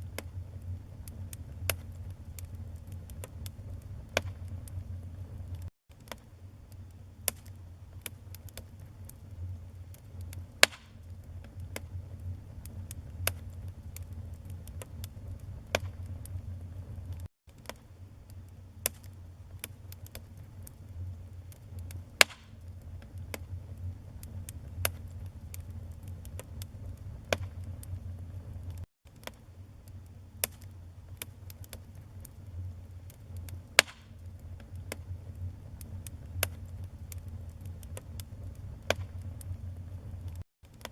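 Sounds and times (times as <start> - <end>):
fire popping sharply: 0.0 - 5.7, 10.2 - 17.3, 21.7 - 28.9, 33.4 - 40.4
wood fire crackling: 0.0 - 40.9.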